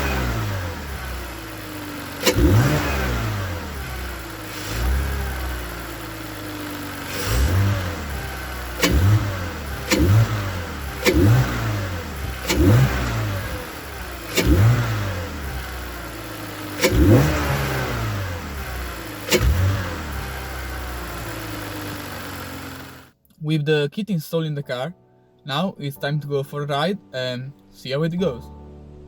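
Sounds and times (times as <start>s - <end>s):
car engine revving: 0.0s - 23.1s.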